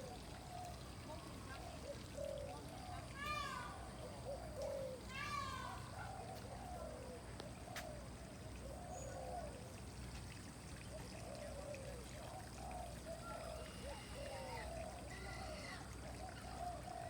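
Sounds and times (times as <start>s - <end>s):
birds calling: 11.2s - 17.0s.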